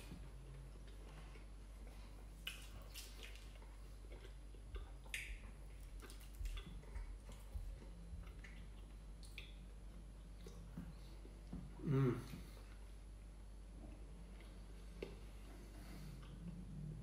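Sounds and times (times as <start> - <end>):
chewing with wet mouth clicks: 2.3 - 11.5, 13.9 - 16.6.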